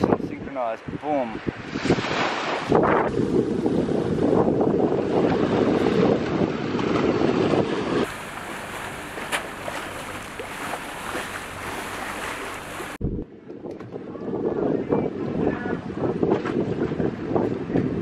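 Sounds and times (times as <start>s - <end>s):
wind buffeting microphone: 0.0s - 18.0s
sea waves: 0.4s - 13.0s.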